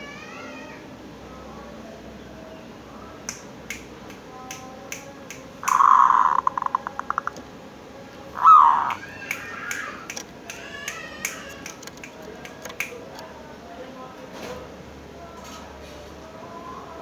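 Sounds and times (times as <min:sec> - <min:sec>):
sharp clicks: 0:03.3 - 0:07.4, 0:08.8 - 0:13.3
dove calling: 0:05.5 - 0:07.5, 0:08.2 - 0:13.2.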